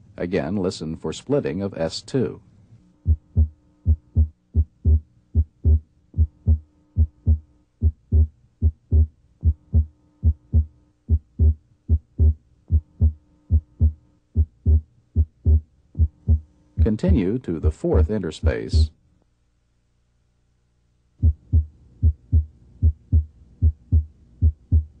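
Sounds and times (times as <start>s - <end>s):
faint steady hum: 0.0s - 25.0s
heartbeat through stethoscope: 3.0s - 16.5s, 18.4s - 18.9s, 21.2s - 25.0s.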